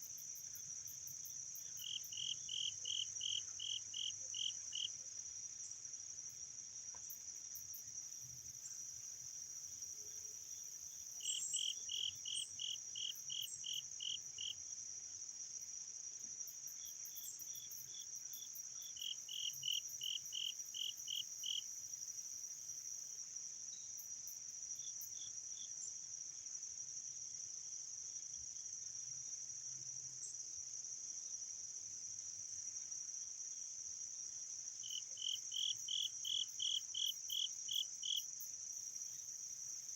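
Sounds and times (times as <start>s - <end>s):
crickets droning: 0.0s - 39.9s
evenly spaced insect chirps: 0.1s - 4.9s, 10.8s - 14.6s, 16.7s - 22.2s, 34.8s - 39.9s.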